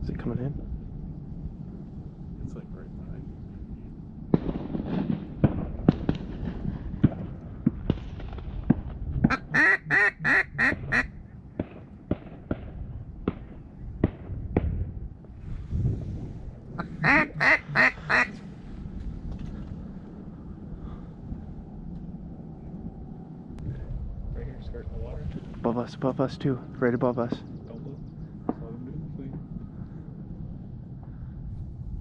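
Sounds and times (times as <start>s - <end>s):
shotgun fire: 4.3s - 8.9s, 11.6s - 14.8s
duck quacking: 9.3s - 11.1s, 16.8s - 18.4s.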